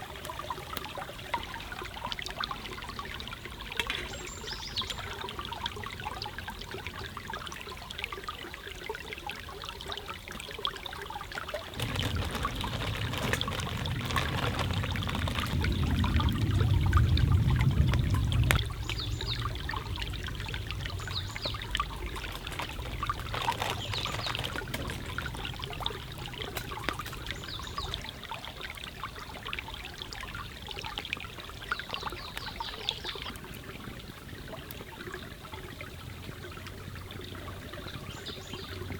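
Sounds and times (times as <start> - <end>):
water trickling: 0.0 - 38.9
deep water rushing: 11.8 - 28.6
small sharp ticks: 17.6 - 19.4.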